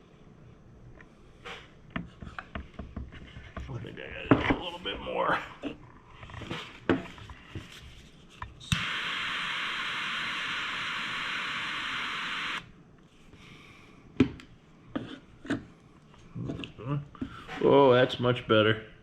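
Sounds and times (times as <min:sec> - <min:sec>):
torch clicking and hissing: 0:08.7 - 0:12.7.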